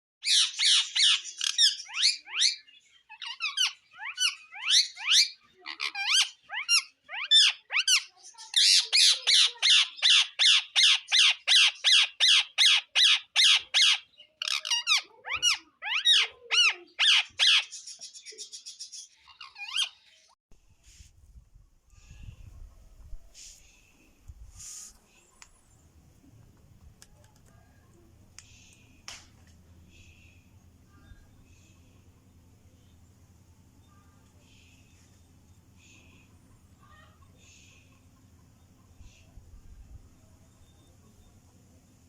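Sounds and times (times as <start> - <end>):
parakeet squawking: 0.2 - 17.8.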